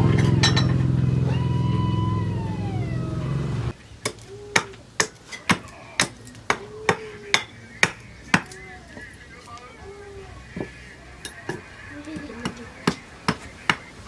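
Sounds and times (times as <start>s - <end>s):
hammer striking metal on anvil: 0.0s - 1.0s, 4.0s - 8.6s
machine humming with falling whine: 0.0s - 3.8s.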